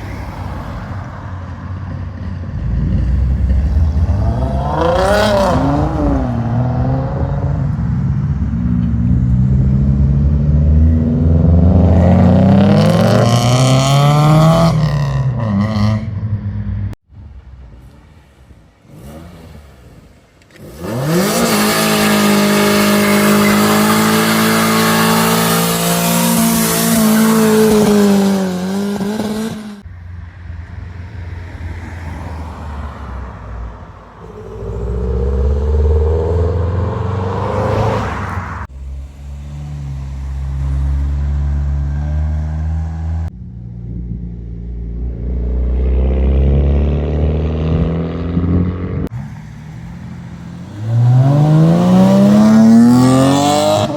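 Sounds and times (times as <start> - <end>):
car engines revving: 0.0 - 53.9
exhaust rumbling: 34.2 - 45.9.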